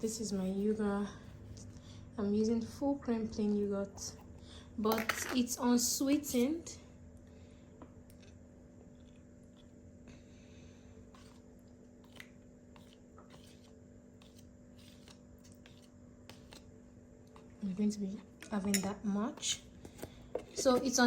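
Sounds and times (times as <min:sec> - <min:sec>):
faint steady hum: 0:00.0 - 0:21.0
spoon scooping yogurt: 0:11.1 - 0:17.6.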